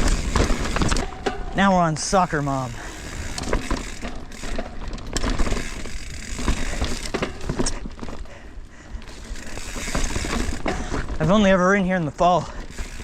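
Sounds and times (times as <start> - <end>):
bicycle freehub clicking: 0.0 - 13.0
bike knocking and rattling on rocks: 0.0 - 13.0.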